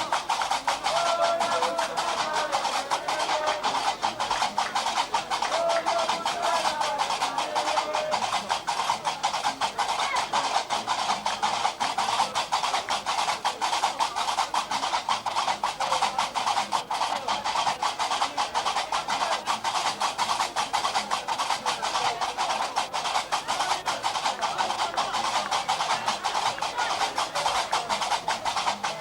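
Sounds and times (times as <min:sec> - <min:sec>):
iron castanets clacking: 0:00.0 - 0:21.5, 0:22.1 - 0:29.0.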